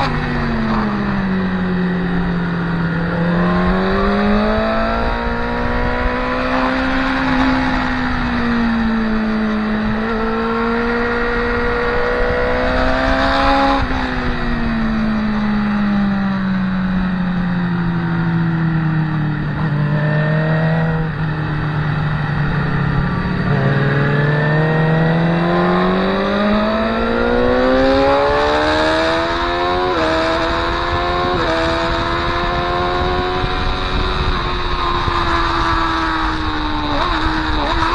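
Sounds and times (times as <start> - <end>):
motorcycle engine at speed: 0.0 - 37.9.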